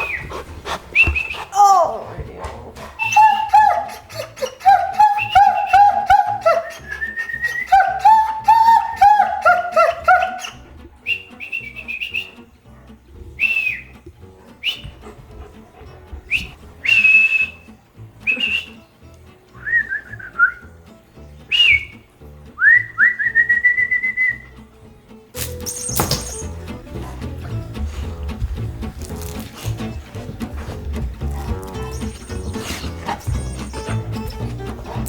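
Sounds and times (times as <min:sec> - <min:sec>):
person whistling: 0:01.0 - 0:01.9, 0:03.0 - 0:04.0, 0:04.7 - 0:09.4, 0:10.2 - 0:12.4, 0:13.4 - 0:13.9, 0:14.6 - 0:14.9, 0:16.3 - 0:18.9, 0:19.6 - 0:20.7, 0:21.5 - 0:22.0, 0:22.6 - 0:24.5, 0:25.5 - 0:26.5, 0:31.8 - 0:34.4.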